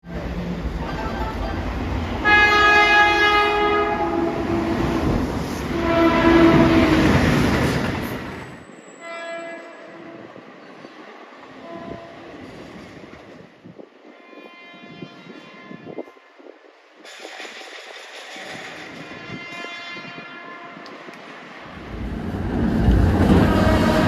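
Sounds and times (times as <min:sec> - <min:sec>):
passing train rumble: 0:00.0 - 0:24.0
train horn blasts: 0:02.2 - 0:07.3, 0:08.9 - 0:10.4, 0:11.6 - 0:12.3, 0:14.1 - 0:16.5, 0:18.7 - 0:21.1, 0:23.1 - 0:24.0.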